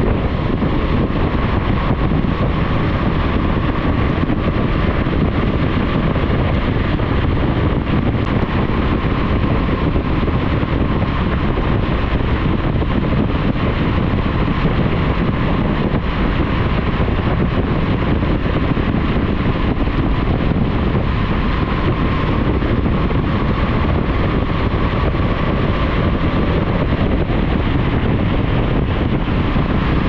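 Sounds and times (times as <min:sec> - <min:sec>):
motorcycle running: 0:00.0 - 0:30.0
wind rushing over microphone: 0:00.0 - 0:30.0.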